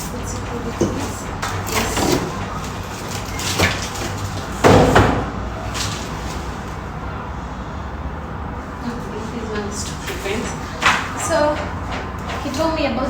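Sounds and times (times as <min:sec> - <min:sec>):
knock on washing machine: 0:04.6 - 0:05.5.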